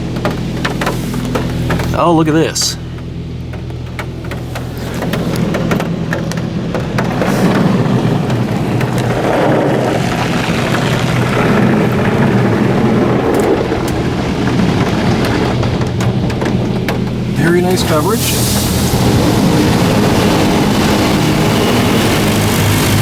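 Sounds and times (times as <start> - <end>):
low machine hum: 0.0 - 23.0
water jets spraying a car: 0.0 - 23.0.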